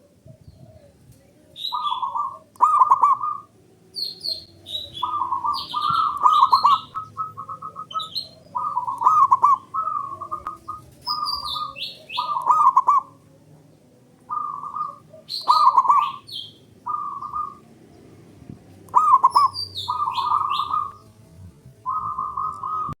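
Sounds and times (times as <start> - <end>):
dove trilling coo: 0.0 - 23.0
high bird chirps: 1.6 - 13.2, 14.3 - 17.7, 18.9 - 21.1, 21.9 - 23.0.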